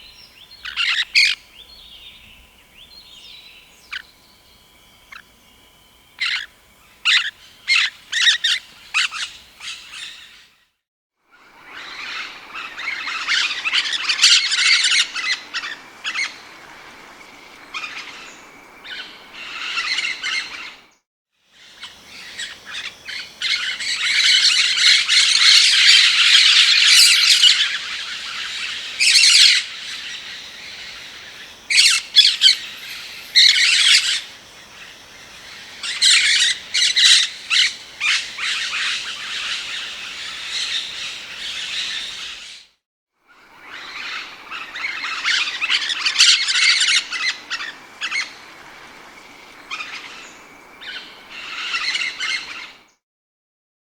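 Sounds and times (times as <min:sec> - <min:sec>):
parakeet squawking: 0:21.8 - 0:42.4.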